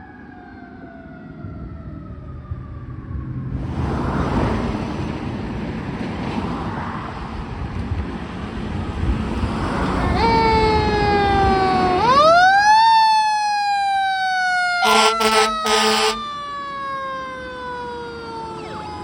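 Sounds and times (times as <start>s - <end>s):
fire engine passing: 0.0s - 19.0s
siren wailing: 10.0s - 19.0s.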